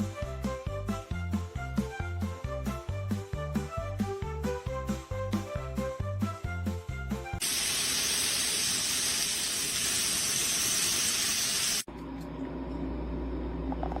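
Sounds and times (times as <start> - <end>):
music with plucked bass beat: 0.0 - 7.4
loud steady hiss: 7.4 - 11.9.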